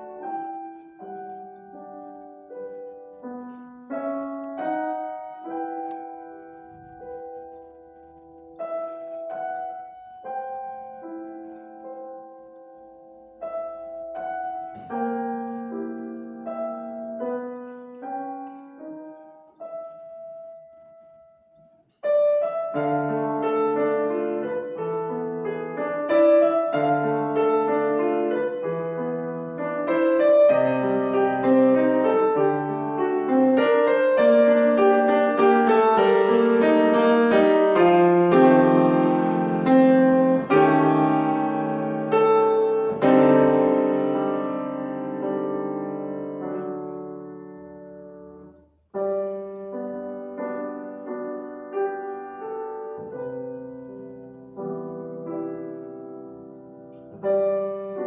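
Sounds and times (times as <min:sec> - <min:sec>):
classical piano playing: 0:00.0 - 0:58.0.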